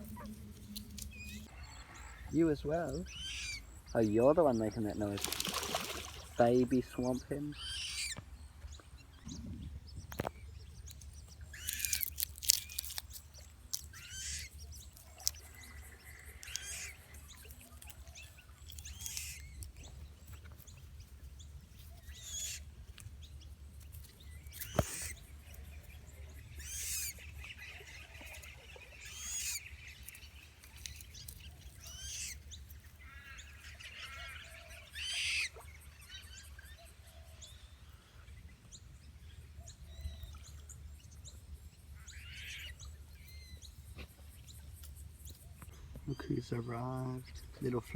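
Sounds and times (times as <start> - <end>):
low steady rumble: 0.0 - 4.0
high-pitched bird calls: 0.0 - 8.2, 8.8 - 21.0, 24.1 - 37.5.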